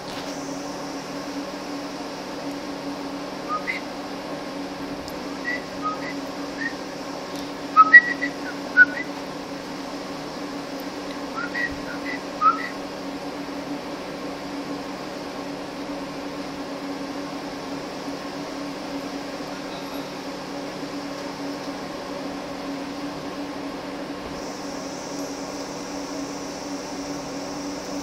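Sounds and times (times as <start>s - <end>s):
machine hum with droning tone: 0.0s - 28.0s
higher hiss: 24.3s - 28.0s.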